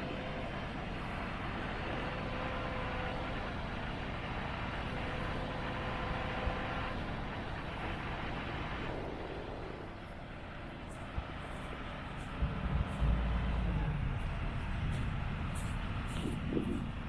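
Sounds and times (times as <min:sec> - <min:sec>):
diesel excavator engine running: 0:00.0 - 0:17.0
faint whine: 0:10.8 - 0:17.0.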